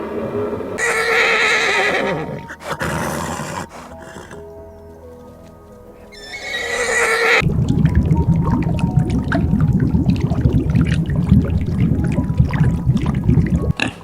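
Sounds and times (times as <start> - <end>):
background music: 0.0 - 14.0
horse whinnying: 0.8 - 4.4, 6.1 - 7.4.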